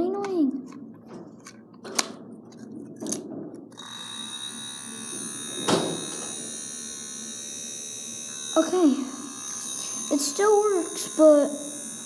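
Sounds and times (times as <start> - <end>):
hairdryer fan whining: 3.8 - 12.0.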